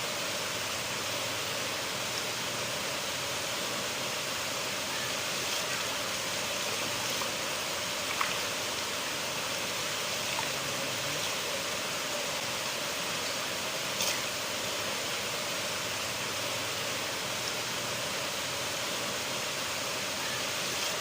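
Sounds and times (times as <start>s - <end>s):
river flowing: 0.0s - 21.0s.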